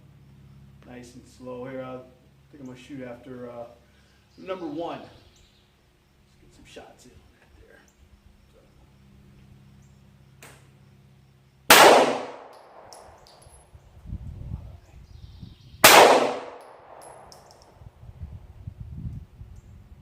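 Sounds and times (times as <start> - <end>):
pistol shots: 11.7 - 13.4, 15.8 - 17.5.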